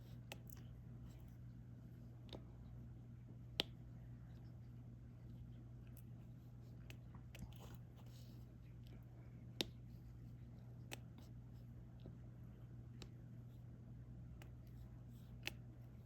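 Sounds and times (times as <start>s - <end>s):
faint low steady hum: 0.0s - 16.0s.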